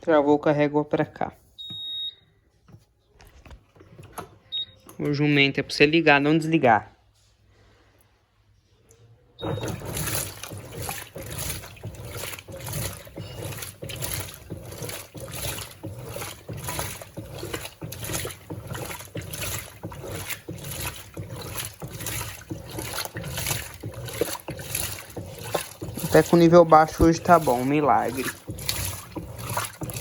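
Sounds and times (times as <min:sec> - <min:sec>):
washing machine motor rumble: 0:09.4 - 0:30.0
washing machine sloshing water: 0:09.4 - 0:30.0.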